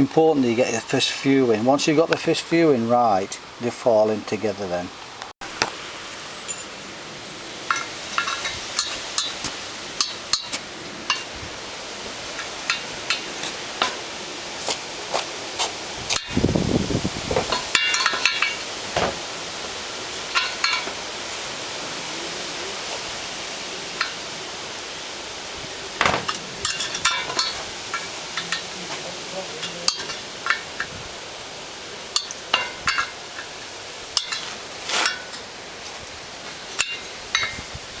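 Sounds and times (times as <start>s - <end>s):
steady hiss: 0.0s - 38.0s
wire spokes clinking against wheel: 7.6s - 11.4s, 12.2s - 14.0s, 17.4s - 19.2s, 20.2s - 21.4s, 23.9s - 24.3s, 26.0s - 31.0s, 32.0s - 35.9s, 36.5s - 37.7s.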